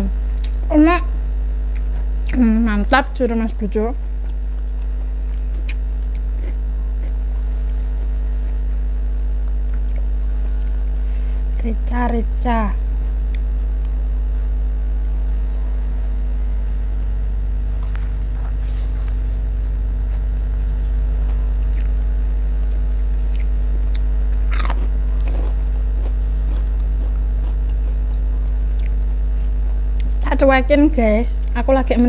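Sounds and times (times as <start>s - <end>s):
steady low hum: 0.0s - 32.0s
sharp crunch: 20.0s - 29.2s
close-up chewing and biting: 21.1s - 29.2s.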